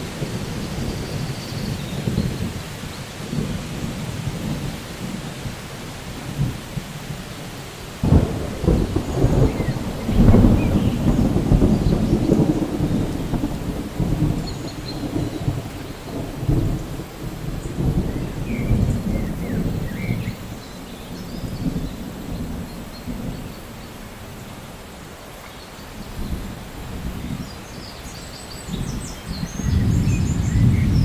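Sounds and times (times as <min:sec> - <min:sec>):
rain falling: 0:00.0 - 0:31.0
thunder crack and rumble: 0:00.1 - 0:06.9, 0:08.0 - 0:23.9, 0:28.7 - 0:31.0.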